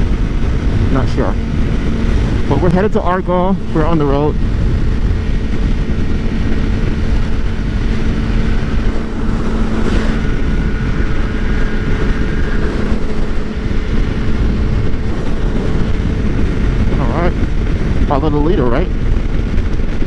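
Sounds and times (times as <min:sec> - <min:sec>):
motorcycle engine cruising: 0:00.0 - 0:20.0
wind noise on microphone: 0:00.0 - 0:20.0.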